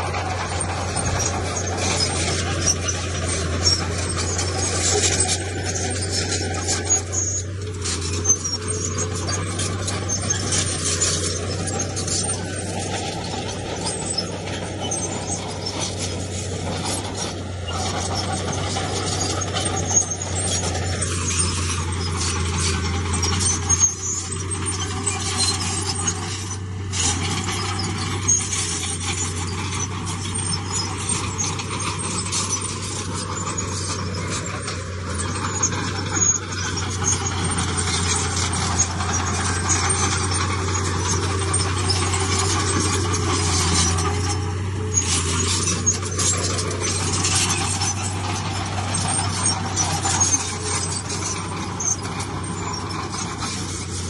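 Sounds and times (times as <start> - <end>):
heavy diesel machinery engine drone: 0.0 - 54.0
metallic squealing and clanking: 0.0 - 54.0.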